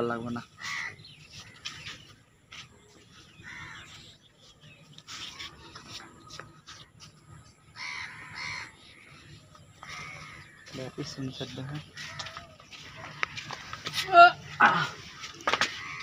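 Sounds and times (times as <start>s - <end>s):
crows cawing: 0.4s - 2.0s, 3.4s - 4.0s, 7.7s - 16.0s.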